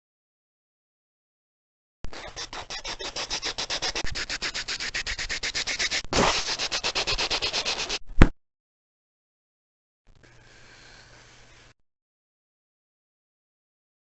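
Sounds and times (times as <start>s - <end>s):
rapid scratching noise: 2.1s - 8.0s.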